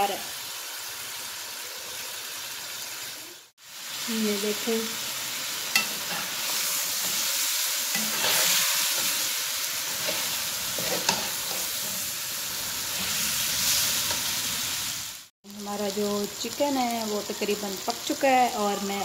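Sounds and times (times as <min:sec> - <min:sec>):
masala sizzling in a wok: 0:00.0 - 0:19.0
metal spoon clinking on pan: 0:05.7 - 0:06.3, 0:10.8 - 0:11.6.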